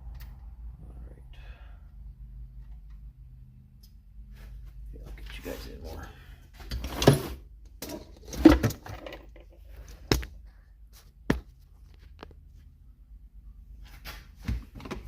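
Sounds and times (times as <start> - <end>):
faint low hum: 0.0 - 15.0
tools clattering: 6.7 - 9.6.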